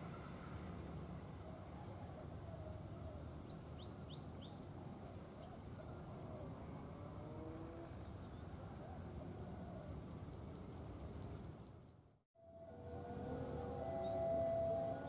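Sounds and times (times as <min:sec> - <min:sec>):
birds chirping: 0:03.4 - 0:12.2, 0:13.8 - 0:15.0.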